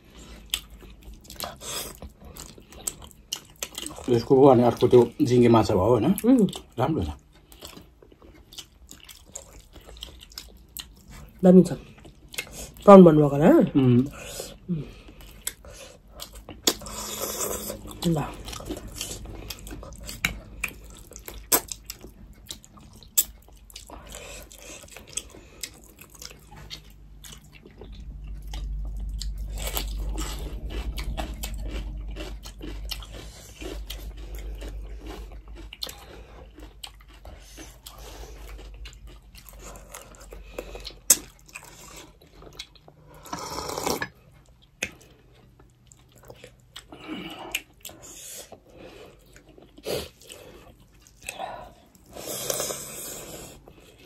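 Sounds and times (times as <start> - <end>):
chewing and crunching: 0.0 - 54.0
low rumble: 26.4 - 36.4.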